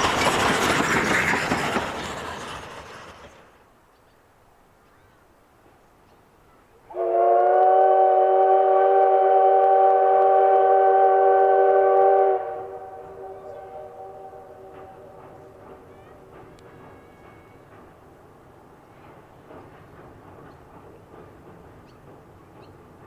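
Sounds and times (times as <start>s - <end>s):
locomotive whistle blast: 6.9s - 14.6s.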